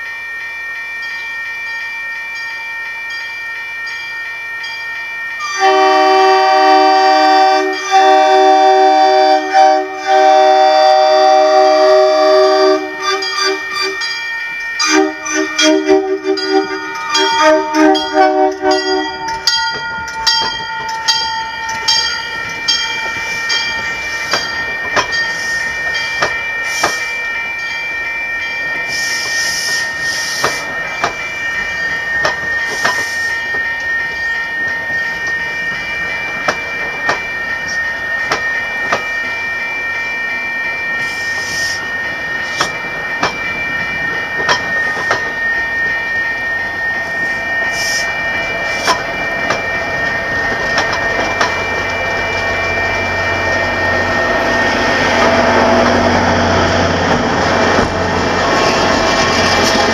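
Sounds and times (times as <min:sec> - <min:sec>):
steady high ringing: 0:00.0 - 0:59.9
train horn: 0:05.4 - 0:14.1, 0:14.8 - 0:19.3
train wheels clacking over rail joints: 0:18.7 - 0:27.1, 0:28.9 - 0:31.3, 0:32.2 - 0:33.7, 0:48.7 - 0:52.7, 0:55.1 - 0:59.9.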